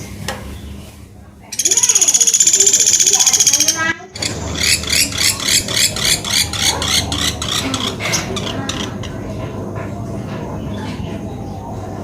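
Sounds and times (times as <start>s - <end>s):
woodpecker calling rapid high notes: 1.5s - 9.0s.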